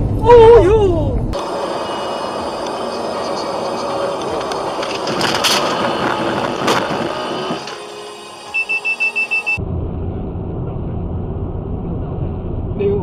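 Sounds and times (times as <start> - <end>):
low steady engine rumble: 0.0 - 8.2, 9.2 - 13.0
road noise: 0.0 - 13.0
sharp bangs: 1.4 - 8.2
high electronic beeps: 8.3 - 9.6.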